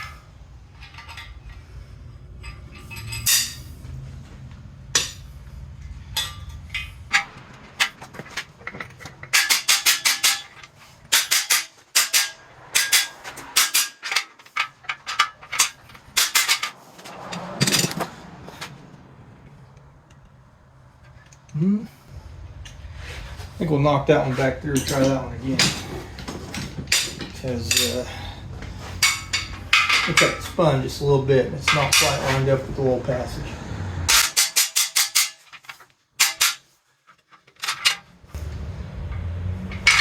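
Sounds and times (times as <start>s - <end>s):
low steady hum: 0.0s - 34.2s
hammer striking metal: 4.9s - 5.3s, 6.0s - 16.8s, 38.4s - 40.0s.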